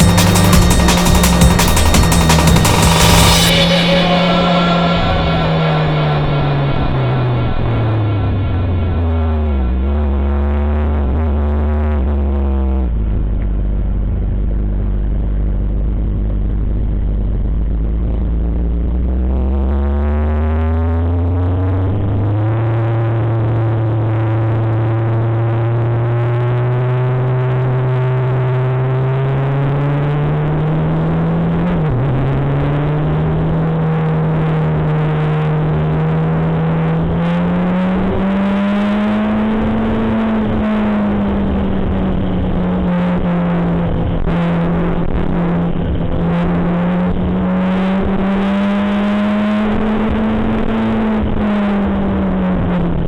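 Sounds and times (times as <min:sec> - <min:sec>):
motorcycle engine running: 0:00.0 - 0:03.8.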